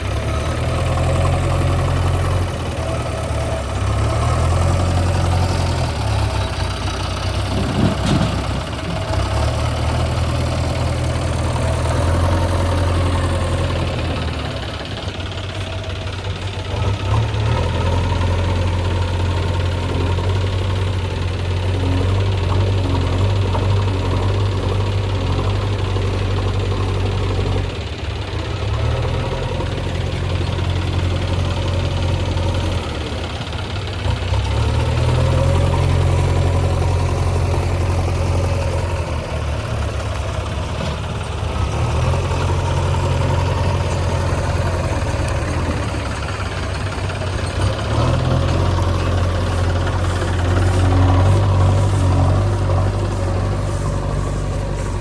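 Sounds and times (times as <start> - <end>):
diesel engine under load: 0.0 - 55.0.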